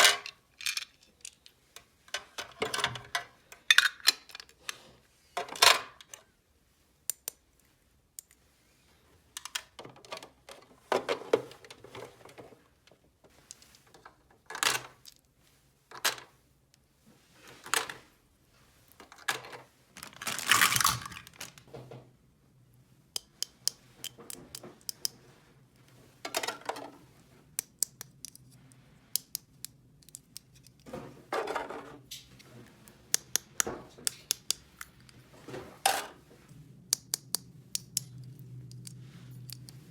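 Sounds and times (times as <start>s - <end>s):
plastic toy pieces clattering: 0.0s - 1.5s, 2.2s - 4.6s, 19.3s - 21.6s.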